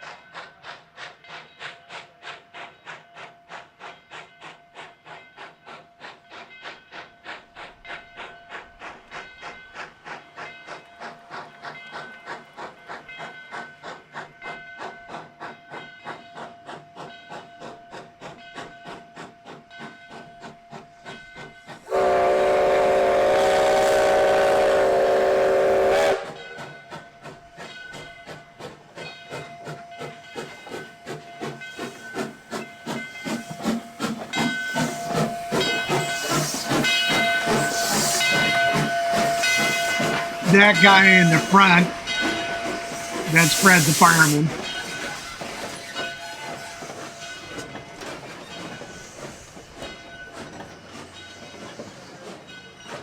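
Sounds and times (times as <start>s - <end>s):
steam hiss: 0.0s - 53.0s
steam locomotive chuffing: 0.0s - 53.0s
steam whistle blowing: 21.9s - 26.4s, 34.7s - 44.6s.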